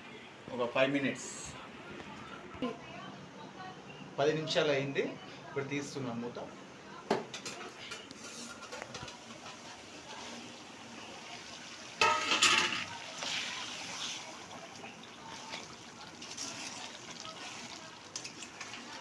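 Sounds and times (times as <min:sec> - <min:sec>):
curry simmering in a pot: 0:08.0 - 0:19.0
metal pot lid clanking: 0:12.0 - 0:13.0.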